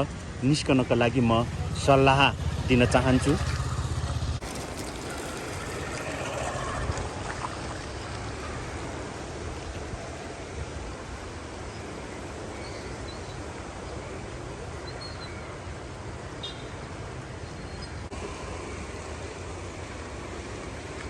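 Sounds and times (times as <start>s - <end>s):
river rushing: 2.4s - 12.4s.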